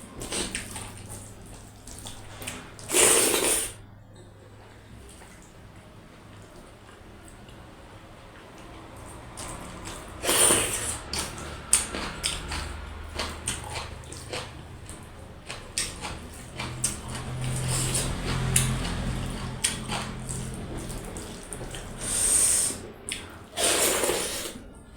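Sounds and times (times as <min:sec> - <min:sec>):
wet chewing and lip smacks: 0:08.6 - 0:23.3.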